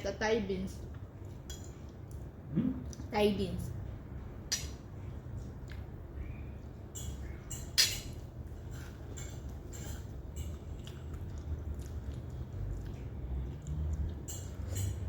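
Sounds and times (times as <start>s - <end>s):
low steady hum: 0.0s - 15.0s
cutlery clinking on plates: 6.9s - 10.6s, 14.2s - 15.0s.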